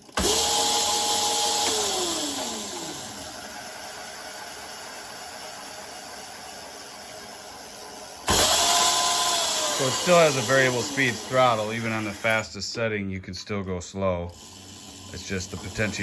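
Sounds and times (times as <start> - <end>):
electric motor whine: 0.0 - 12.5.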